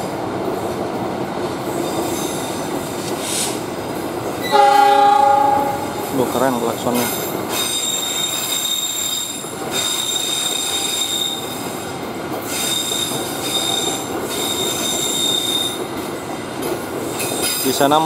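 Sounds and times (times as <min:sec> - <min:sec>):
rumble of train wheels: 0:00.0 - 0:18.0
train wheels squealing on rails: 0:01.6 - 0:03.7, 0:05.9 - 0:18.0.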